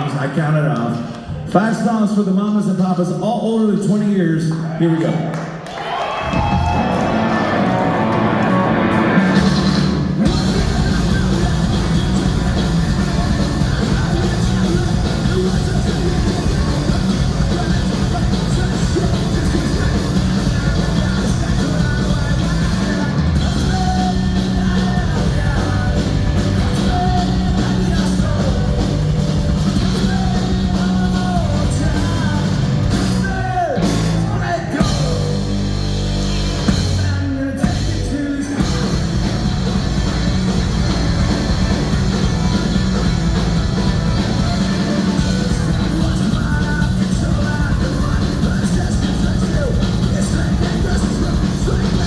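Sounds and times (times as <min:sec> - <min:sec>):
drums: 0:05.5 - 0:52.0
electric guitars: 0:06.1 - 0:52.0
live rock band playing: 0:06.2 - 0:52.0
bass and kick drum: 0:08.7 - 0:52.0.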